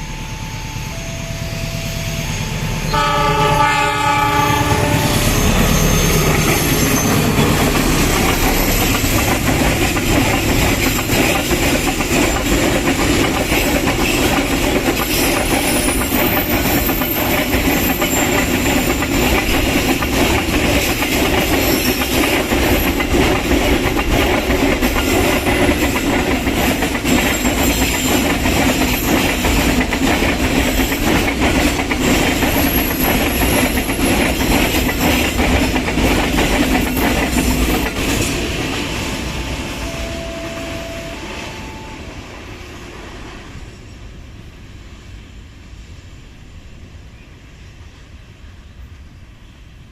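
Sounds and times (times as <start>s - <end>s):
train horn: 0.0s - 7.0s, 39.5s - 42.2s
high wheel squeal: 0.0s - 9.4s, 15.0s - 19.9s, 32.2s - 35.3s
train wheels clattering on rails: 2.9s - 41.6s.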